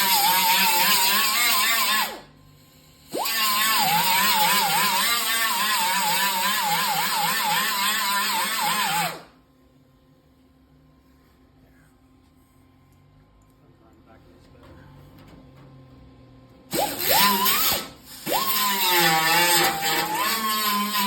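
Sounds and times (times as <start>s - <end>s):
angle grinder grinding metal: 0.0s - 9.3s, 16.7s - 21.0s.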